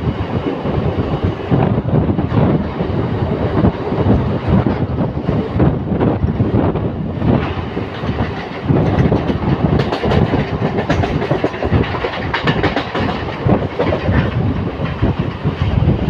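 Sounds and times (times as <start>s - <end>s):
train coach rumble: 0.0s - 16.0s
wheels clattering over rails: 7.2s - 16.0s.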